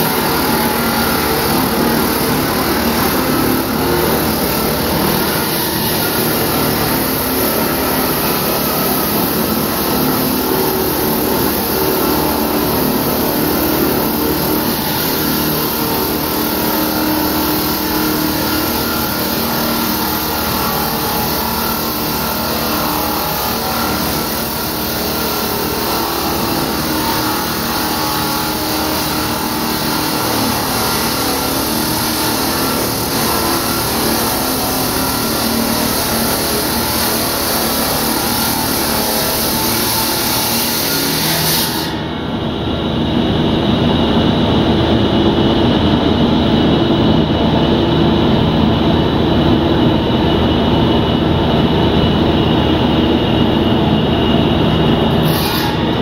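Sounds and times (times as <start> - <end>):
concrete saw humming: 0.0 - 56.0
loud low hum: 41.8 - 56.0.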